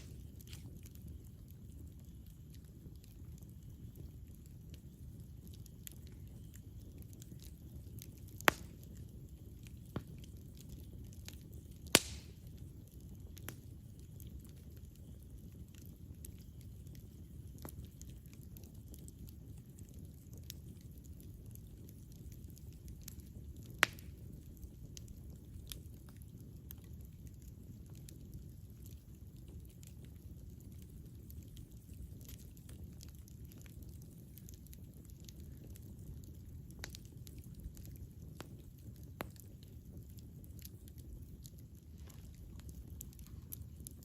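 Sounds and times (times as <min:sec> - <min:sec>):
loud fire pops: 0:00.0 - 0:01.8, 0:05.8 - 0:13.7, 0:22.3 - 0:26.9
campfire crackling: 0:00.0 - 0:44.0
low rumble of flames: 0:00.0 - 0:44.0
loud fire pop: 0:12.0 - 0:12.3.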